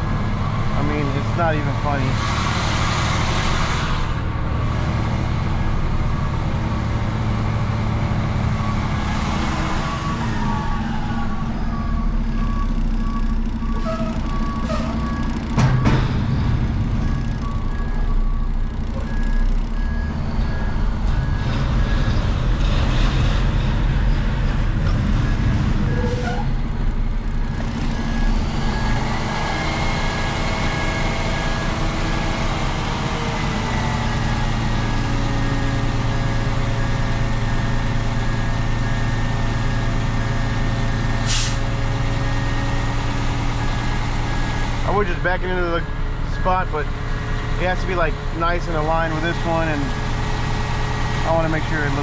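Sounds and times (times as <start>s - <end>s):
truck engine running: 0.0s - 52.0s
reversing beeper: 9.8s - 23.1s, 27.5s - 32.3s
air brake hiss: 41.2s - 41.7s.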